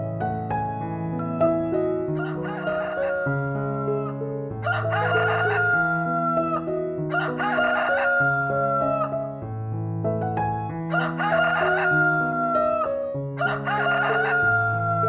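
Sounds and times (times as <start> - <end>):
keyboard melody music: 0.0 - 15.0
rooster crowing: 1.2 - 1.4, 2.2 - 9.2, 10.9 - 15.0.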